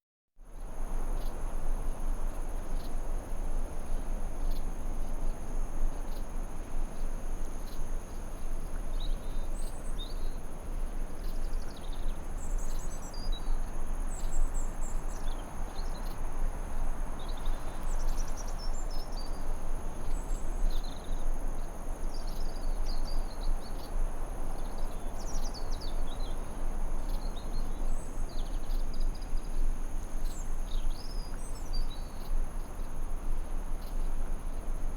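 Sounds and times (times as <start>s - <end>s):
insect drone: 0.6s - 34.9s.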